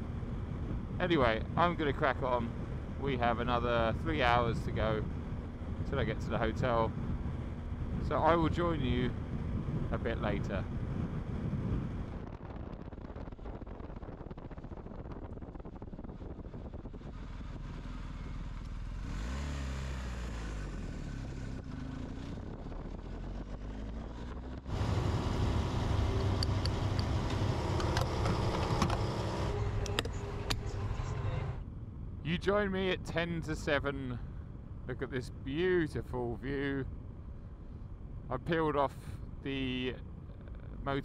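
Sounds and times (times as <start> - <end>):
road and wind noise: 0.0 - 41.0
motorcycle engine running: 10.6 - 31.1.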